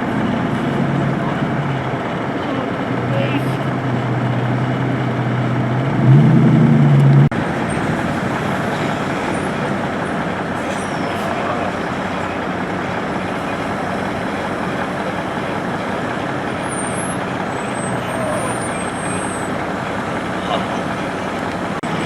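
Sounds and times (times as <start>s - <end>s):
city street traffic: 0.0s - 22.0s
large vehicle engine running: 0.0s - 22.0s.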